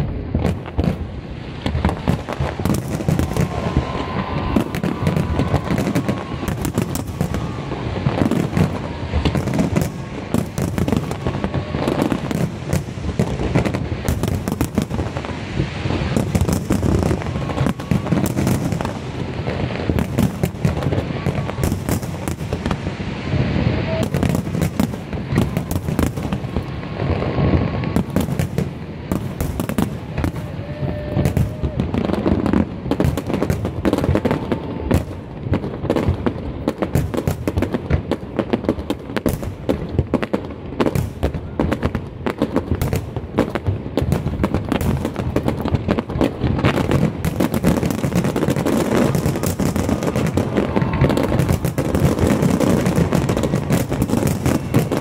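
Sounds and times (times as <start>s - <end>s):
fireworks bursting and crackling: 0.0s - 55.0s.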